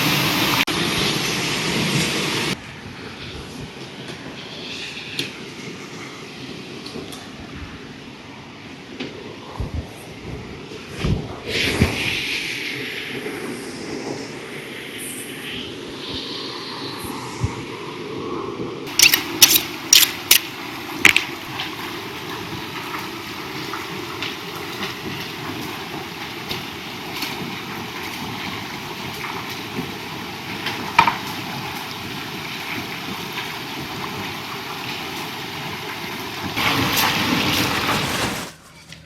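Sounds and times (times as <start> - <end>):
flowing river: 31.4 - 38.6.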